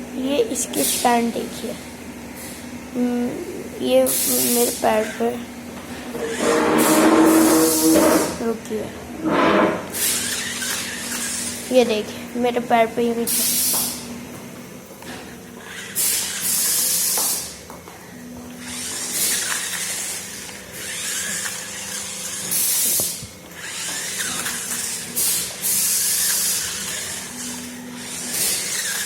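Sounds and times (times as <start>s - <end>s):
toy electric motor whirring: 3.3s - 5.4s, 6.1s - 8.6s, 9.9s - 14.0s, 15.1s - 17.6s, 18.6s - 29.0s.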